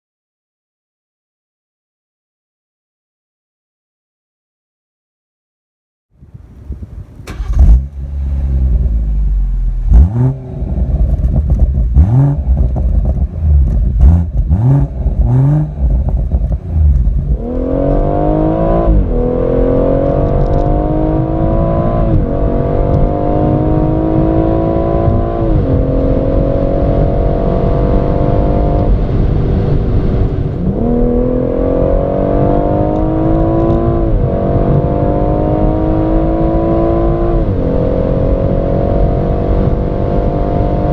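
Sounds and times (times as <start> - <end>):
car engine at full throttle: 6.3 - 40.9
car engine revving: 6.6 - 40.9
exhaust cracks: 6.7 - 18.1.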